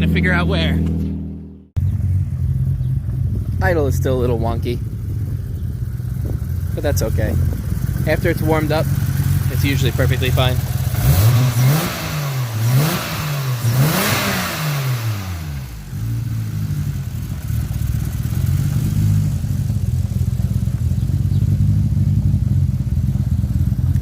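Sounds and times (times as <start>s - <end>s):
car engine revving and idling: 0.0s - 24.0s.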